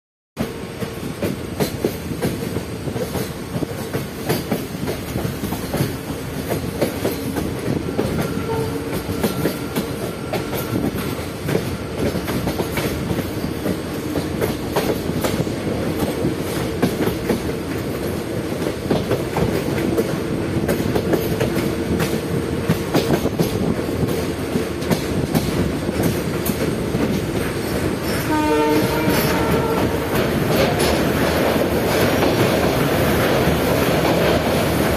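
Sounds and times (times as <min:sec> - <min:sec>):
train rumbling on rails: 0:00.4 - 0:34.9
wheels clicking over rail joints: 0:01.2 - 0:34.9
train horn: 0:08.1 - 0:10.9, 0:28.0 - 0:30.2.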